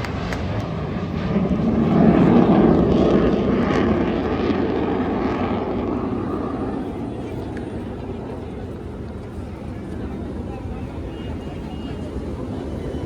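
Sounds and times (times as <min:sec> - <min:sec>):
military aircraft flying overhead: 0:00.0 - 0:13.0.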